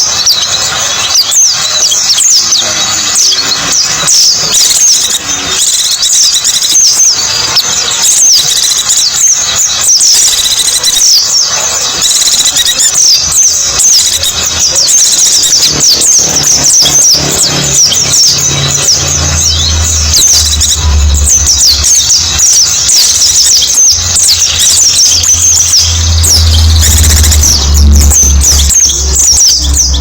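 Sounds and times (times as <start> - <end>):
birds twittering: 0.0 - 30.0
low steady hum: 15.3 - 30.0.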